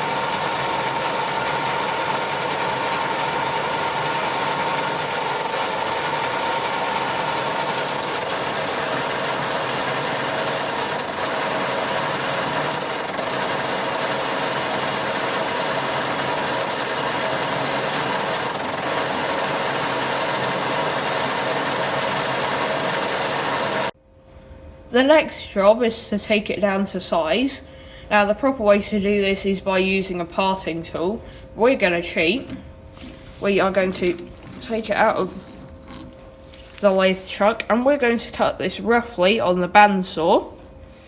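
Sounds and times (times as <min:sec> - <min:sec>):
lathe running with whine: 0:00.0 - 0:24.0.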